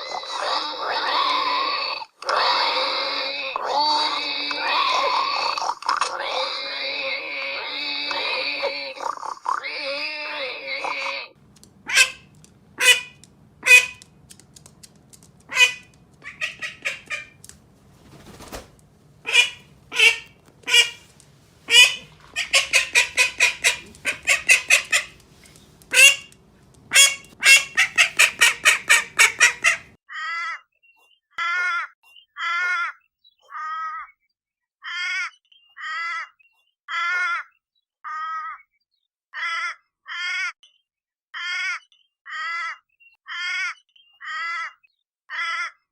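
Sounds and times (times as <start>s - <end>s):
harsh bird calls: 10.8s - 30.6s
bird honking calls: 11.4s - 30.0s.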